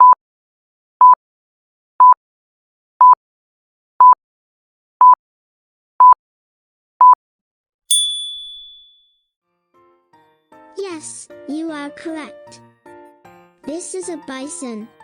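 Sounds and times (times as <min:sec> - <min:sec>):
bright chime: 0:07.9 - 0:09.0.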